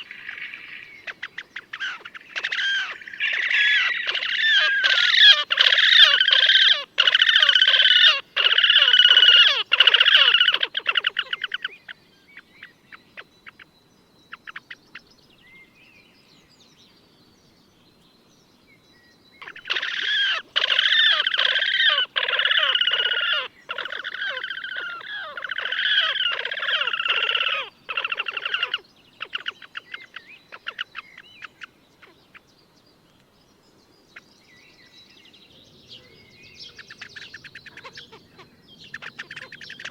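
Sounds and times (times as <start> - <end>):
grebes giving trilling calls: 0.0 - 11.9, 19.4 - 32.4, 36.6 - 39.9.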